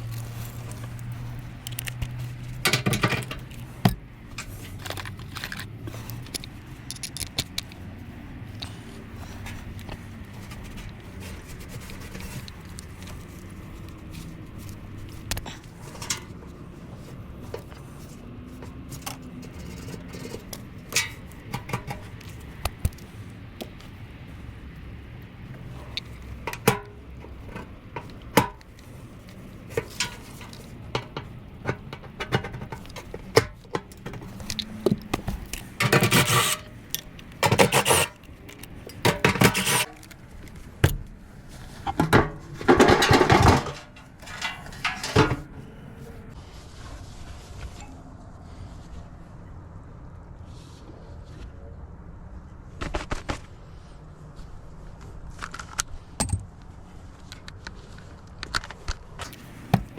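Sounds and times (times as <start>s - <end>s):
scraping strokes: 35.5s - 38.3s, 39.0s - 40.0s
tools and metal panels knocking: 41.9s - 45.5s, 59.7s - 59.9s.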